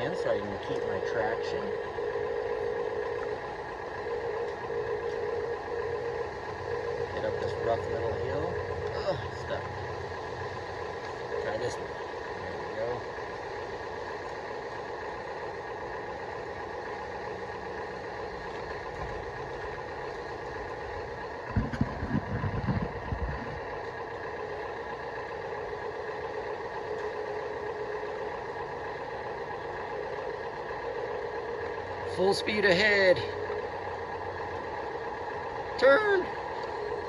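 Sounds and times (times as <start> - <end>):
electric motors whining: 0.0 - 37.0
low rumble: 18.4 - 24.0.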